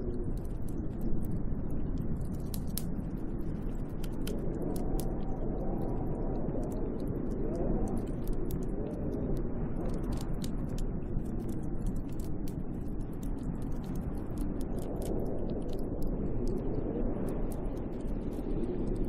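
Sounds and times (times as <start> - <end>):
light ticks: 0.0 - 19.0
snowstorm wind blowing: 0.0 - 19.0.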